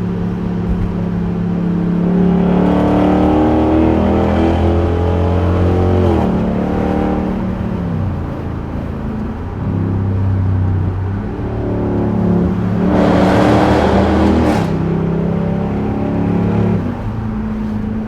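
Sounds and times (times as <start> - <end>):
car exhaust drone: 0.0 - 18.0
rush of noise: 0.0 - 18.0.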